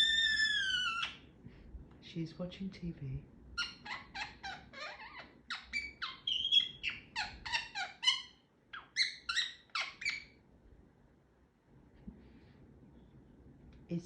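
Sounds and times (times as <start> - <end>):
parrot chattering: 0.0 - 1.2, 3.6 - 10.4.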